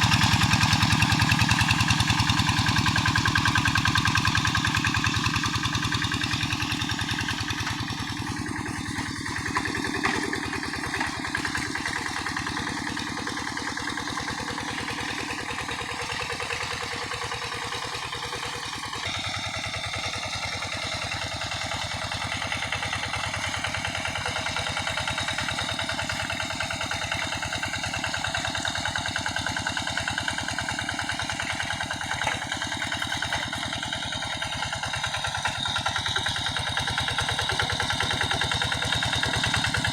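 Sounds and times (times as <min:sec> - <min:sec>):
diesel tractor engine under load: 0:00.0 - 0:39.9.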